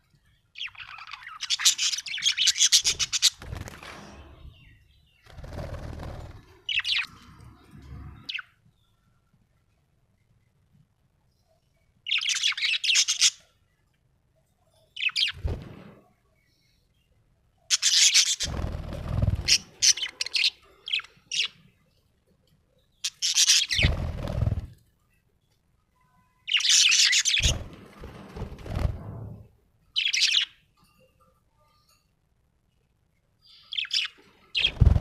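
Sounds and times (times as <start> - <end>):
parrot chirping: 12.1 - 13.4, 23.0 - 23.9, 26.5 - 27.7.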